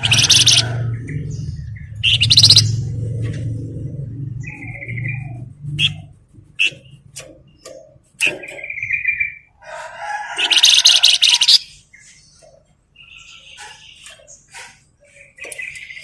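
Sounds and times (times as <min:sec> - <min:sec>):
bird harsh rapid chatter: 0:00.0 - 0:00.8, 0:01.9 - 0:02.9, 0:10.4 - 0:11.7
songbird chirping and trilling: 0:00.0 - 0:16.0.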